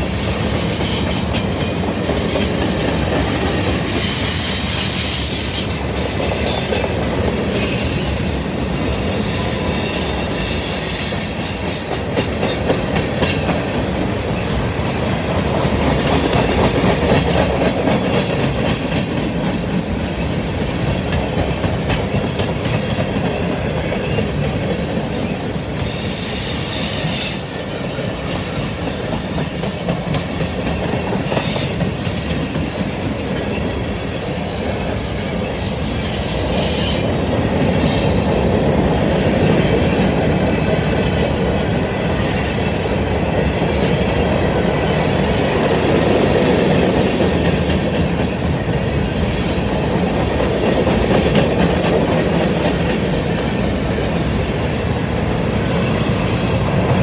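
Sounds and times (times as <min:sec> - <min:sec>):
freight train cars rolling: 0:00.0 - 0:57.0
high thin wheel squeal: 0:07.6 - 0:11.9, 0:25.8 - 0:30.0, 0:35.6 - 0:37.2
wheels clattering on rails: 0:11.2 - 0:25.3.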